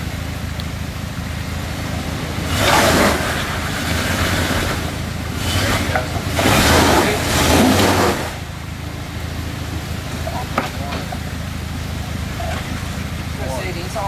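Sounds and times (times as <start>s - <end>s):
off-road vehicle engine running: 0.0s - 14.0s
rushing noise surges: 1.4s - 11.2s.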